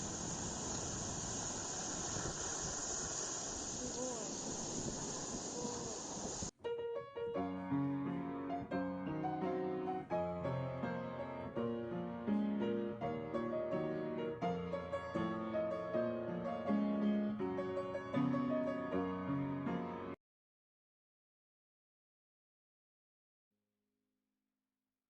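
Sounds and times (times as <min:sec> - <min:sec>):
piano music: 0:06.6 - 0:20.2.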